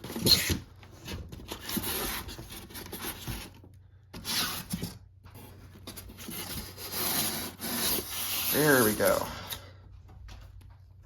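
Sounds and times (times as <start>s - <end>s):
styrofoam scraping cardboard: 0.0s - 3.6s, 4.2s - 9.2s.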